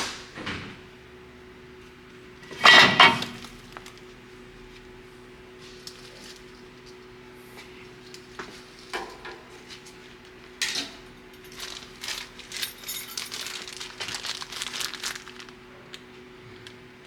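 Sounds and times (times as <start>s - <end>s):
metal parts clinking and rattling: 2.4s - 3.8s, 10.6s - 15.3s.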